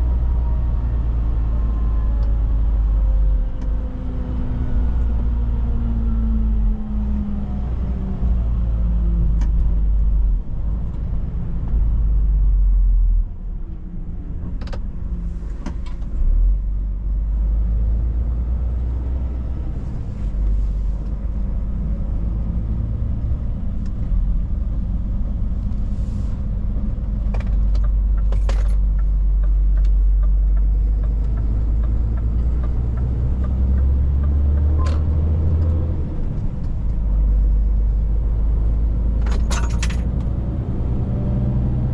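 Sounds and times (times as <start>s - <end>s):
truck engine and road noise: 0.0s - 41.9s
clicks and rattles: 39.2s - 40.2s.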